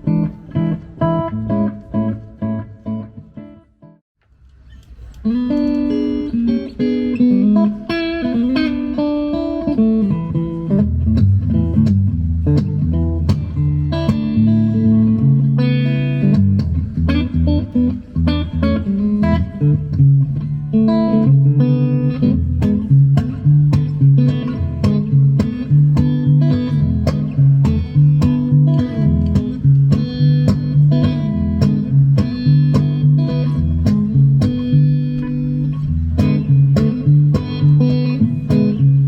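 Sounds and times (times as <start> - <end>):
electric guitar playing: 0.0 - 4.0, 4.8 - 39.0.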